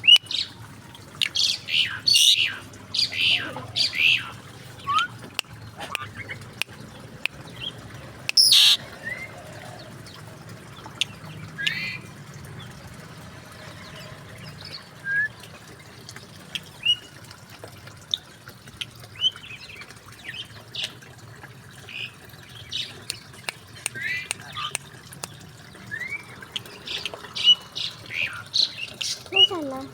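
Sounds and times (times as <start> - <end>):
birds chirping and whistling: 1.2 - 5.2, 7.6 - 9.3, 25.9 - 29.5
bird harsh squawk: 1.3 - 5.1, 8.3 - 8.8.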